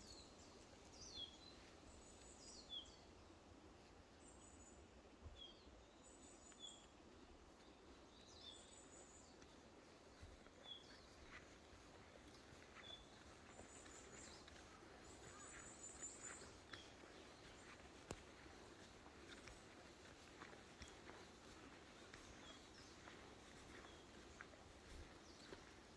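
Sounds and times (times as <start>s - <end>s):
low steady hiss: 0.0s - 25.9s
small birds chirping: 7.6s - 25.9s.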